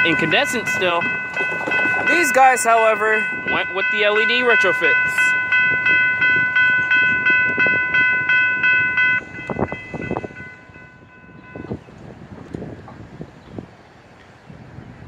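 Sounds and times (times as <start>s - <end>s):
railroad crossing bell ringing: 0.0s - 11.9s
street noise: 0.0s - 15.0s.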